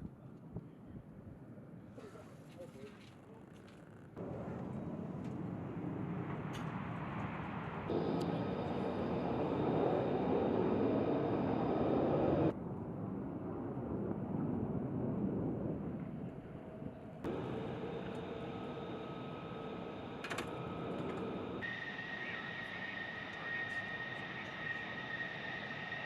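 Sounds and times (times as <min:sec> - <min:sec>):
jet engine running: 0:04.2 - 0:12.6, 0:14.8 - 0:26.0.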